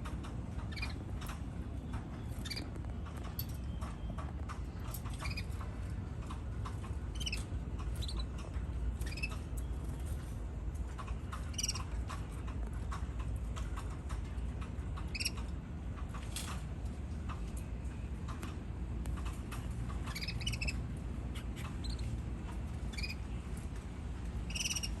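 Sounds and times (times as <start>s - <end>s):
low background rumble: 0.0s - 25.0s
canaries chirping: 0.3s - 13.0s, 14.7s - 15.6s, 19.3s - 23.7s, 24.3s - 25.0s.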